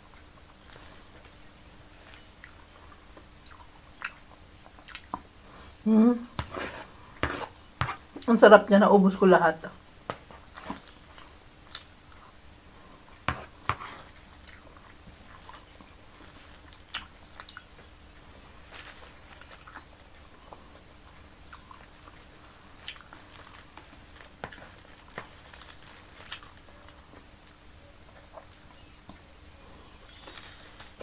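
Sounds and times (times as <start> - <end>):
chewing with wet mouth noises: 0.2 - 5.3, 13.1 - 29.3.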